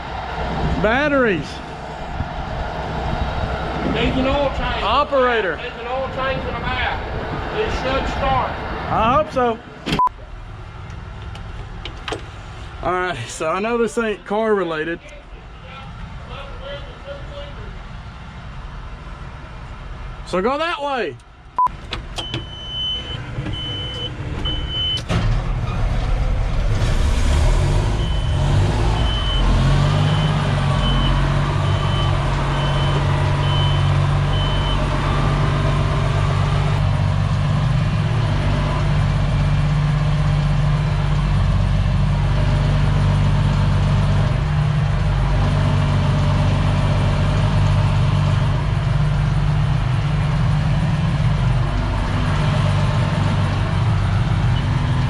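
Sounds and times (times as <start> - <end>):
diesel engine running: 0.0 - 14.8, 21.2 - 55.0
backup alarm beeping: 21.6 - 25.1, 27.9 - 34.9
high warning tone: 27.9 - 35.0.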